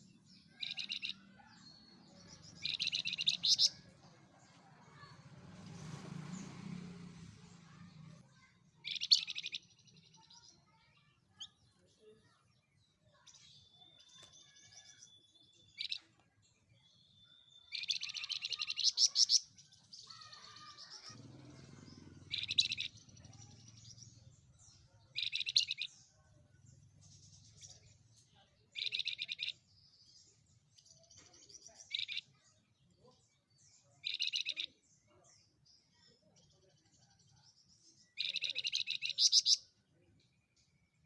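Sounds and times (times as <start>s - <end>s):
songbird buzzy chattering: 0.5s - 1.3s, 2.4s - 3.8s, 8.8s - 9.6s, 17.7s - 19.5s, 20.3s - 24.0s, 25.1s - 25.9s, 28.8s - 29.6s, 34.0s - 34.7s, 38.2s - 39.7s.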